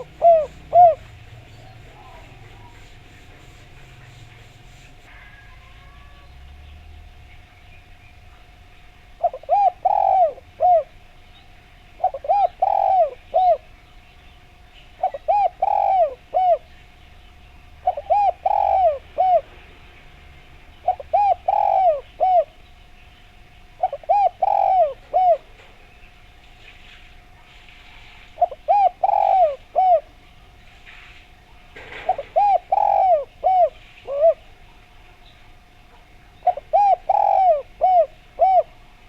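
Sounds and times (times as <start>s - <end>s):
dove cooing: 0.0s - 6.3s, 9.1s - 11.1s, 11.9s - 13.8s, 14.9s - 17.0s, 17.7s - 19.7s, 20.8s - 22.6s, 23.6s - 26.0s, 28.3s - 30.6s, 31.8s - 34.7s, 35.5s - 39.0s.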